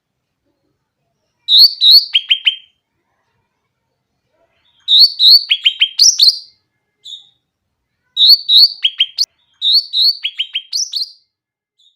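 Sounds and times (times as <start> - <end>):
bulbul singing whistled notes: 1.5 - 2.7, 4.8 - 6.5, 8.2 - 11.2.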